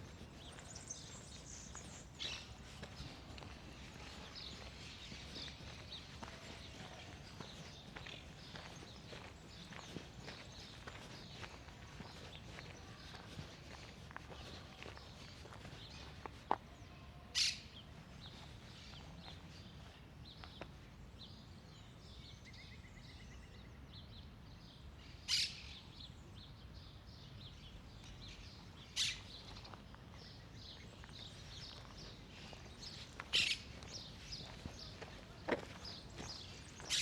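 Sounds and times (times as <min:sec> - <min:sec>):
small birds chirping: 0:00.0 - 0:23.7, 0:27.3 - 0:37.0
low background noise: 0:00.0 - 0:37.0
harsh bird calls: 0:31.7 - 0:37.0.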